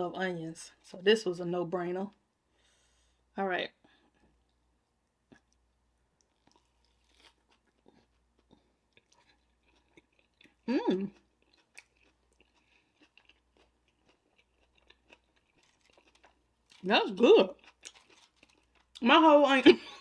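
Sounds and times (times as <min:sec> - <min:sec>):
chewing with crunching: 0:05.3 - 0:16.8, 0:17.5 - 0:19.0.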